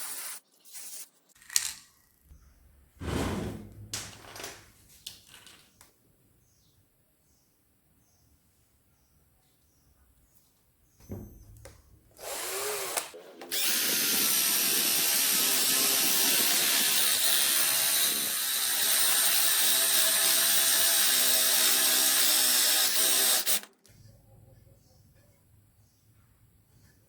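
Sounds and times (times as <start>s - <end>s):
electric drill motor whining: 12.2s - 23.7s.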